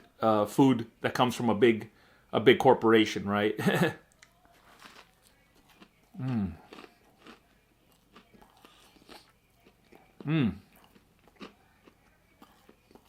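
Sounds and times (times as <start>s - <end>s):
person chewing crunchy food: 4.2s - 13.0s
person humming: 6.2s - 6.7s, 10.2s - 10.6s.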